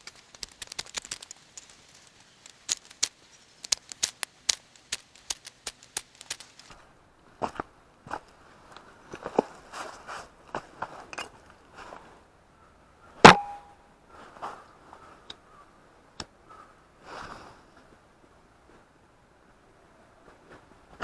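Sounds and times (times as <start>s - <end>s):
metallic clank: 13.3s - 13.8s.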